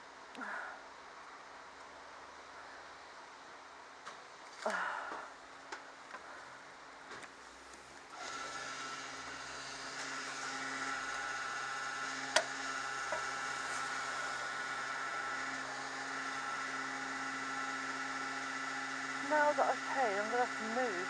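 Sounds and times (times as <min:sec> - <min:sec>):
machine hum with faint whine: 0:00.0 - 0:21.0.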